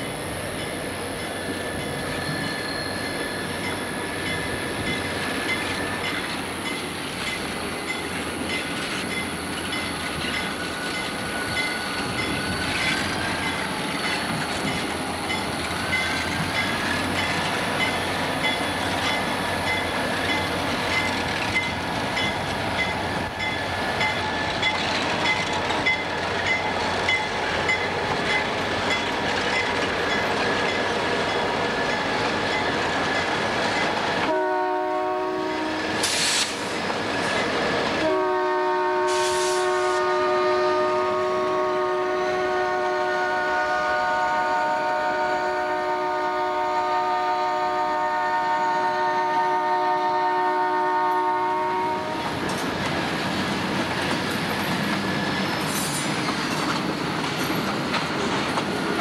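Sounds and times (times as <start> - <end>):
diesel locomotive engines running: 0.0 - 59.0
wheels squealing on rails: 0.0 - 59.0.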